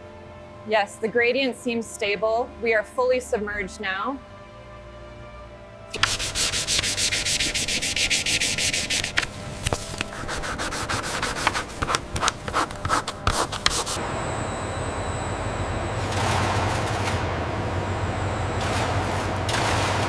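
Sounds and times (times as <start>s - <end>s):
hand sanding a surface: 6.0s - 14.0s.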